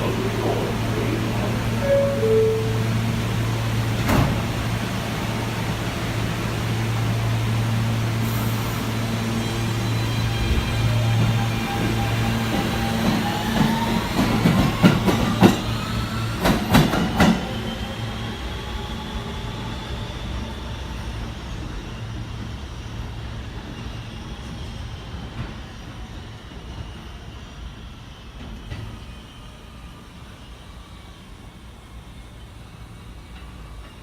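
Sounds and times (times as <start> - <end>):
whine gliding in pitch: 0.0 - 3.6
train running: 0.0 - 34.0.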